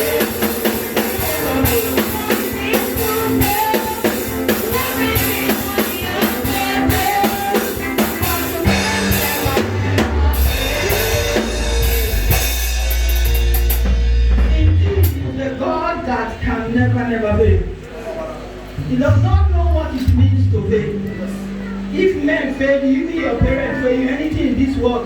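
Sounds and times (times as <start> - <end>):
drum kit beat: 0.0 - 17.0
church band music: 0.0 - 25.0
deep bass note: 8.7 - 17.8, 18.8 - 21.9.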